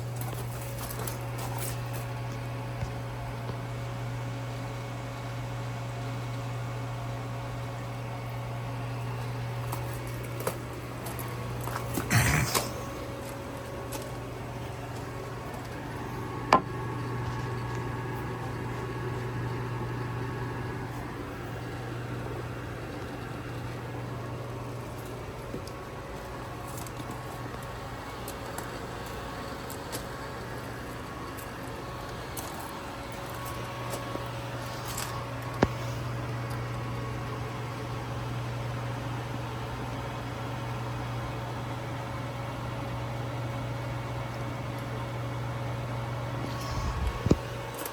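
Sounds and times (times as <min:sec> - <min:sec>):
constant low hum: 0:00.0 - 0:47.9.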